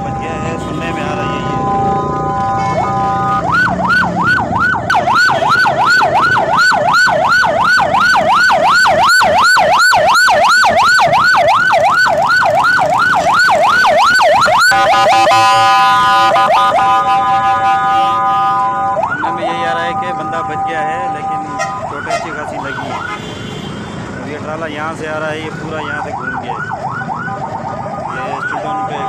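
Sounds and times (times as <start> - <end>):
siren yelping: 0.7 - 23.2, 25.8 - 29.0
horn-like siren chord: 14.7 - 23.6.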